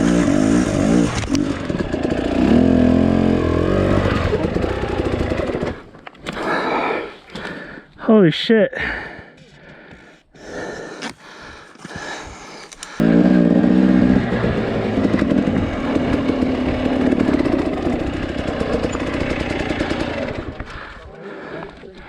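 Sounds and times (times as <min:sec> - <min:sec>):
engine knocks and clatter: 0:00.0 - 0:06.4, 0:13.0 - 0:21.0
dirt bike engine: 0:00.0 - 0:07.7, 0:11.4 - 0:22.0.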